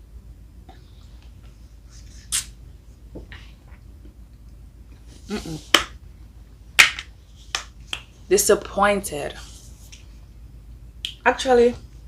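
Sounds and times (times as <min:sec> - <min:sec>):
lip smacks: 0:02.2 - 0:02.6.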